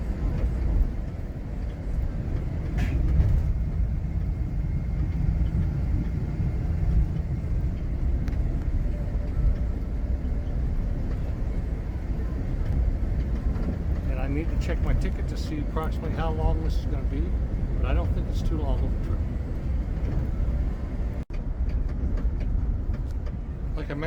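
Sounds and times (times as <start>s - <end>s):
bus engine and road rumble: 0.0s - 24.0s.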